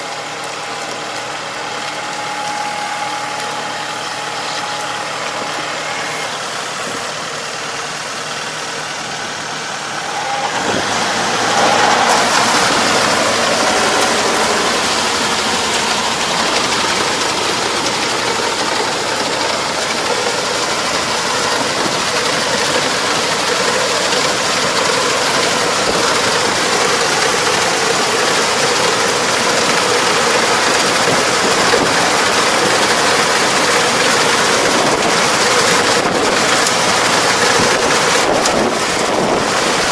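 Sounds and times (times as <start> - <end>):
farm machine engine running: 0.0 - 39.9.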